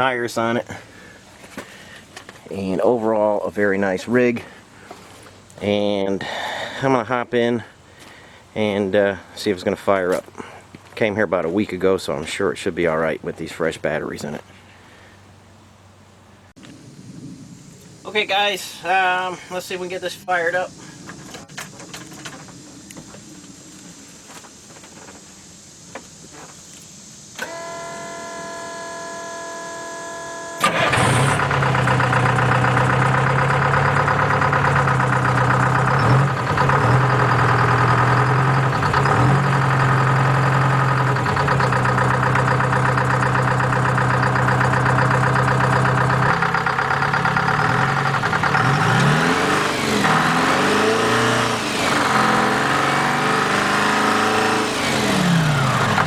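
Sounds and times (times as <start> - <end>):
starter motor whine: 27.4 - 52.8, 54.6 - 56.0
diesel engine running and revving: 30.6 - 56.0.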